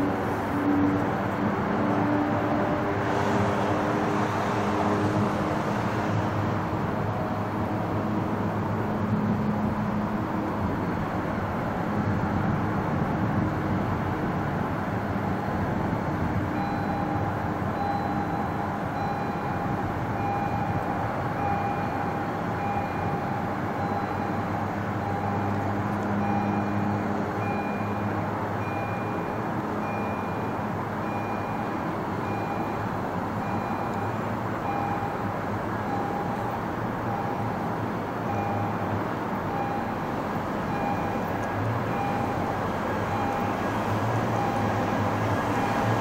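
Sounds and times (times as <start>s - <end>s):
diesel locomotive engine rumbling: 0.0s - 46.0s
locomotive bell ringing: 16.6s - 25.5s, 26.2s - 37.6s, 38.3s - 38.9s, 39.5s - 40.1s, 40.7s - 41.3s, 41.9s - 43.6s.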